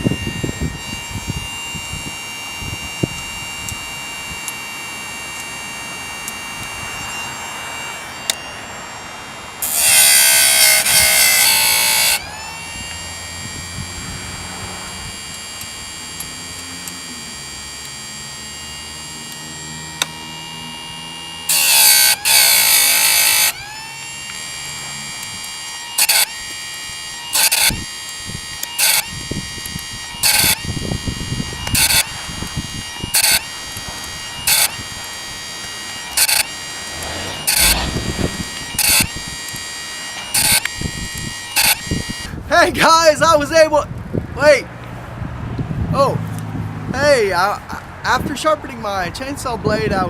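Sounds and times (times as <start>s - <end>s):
grinding wheel on chain teeth: 0.0s - 43.4s
grinding wheel motor whining: 0.0s - 50.0s.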